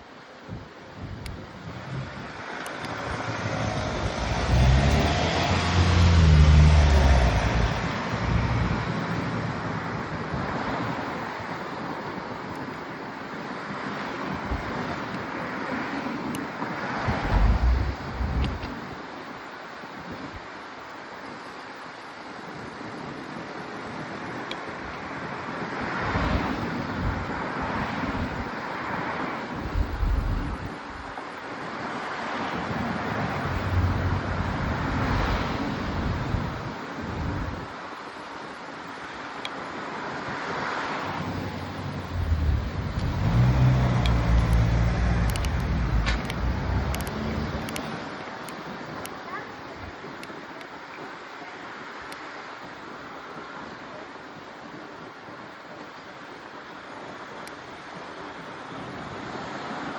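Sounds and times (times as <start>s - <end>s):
wind buffeting microphone: 0.5s - 12.0s, 16.9s - 19.0s, 25.9s - 31.3s, 32.6s - 37.8s, 41.0s - 48.2s
car passing: 1.5s - 10.5s, 17.0s - 18.8s, 29.6s - 31.2s, 32.6s - 37.6s, 40.6s - 48.1s.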